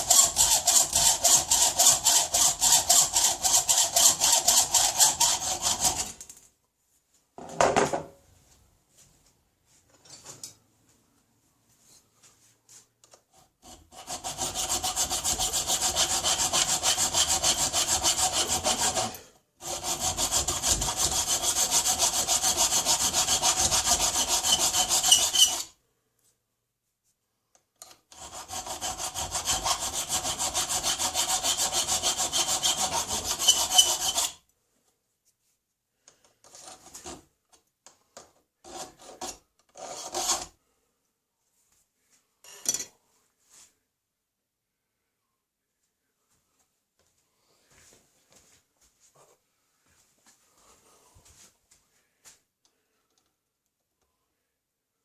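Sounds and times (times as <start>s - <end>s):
tool rasping on metal: 0.0s - 6.2s, 13.6s - 25.8s, 28.1s - 34.4s, 38.7s - 40.6s.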